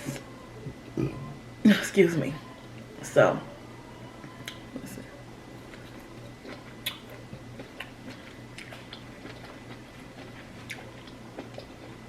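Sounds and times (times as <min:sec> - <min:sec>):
person chewing and eating: 0:05.6 - 0:12.0.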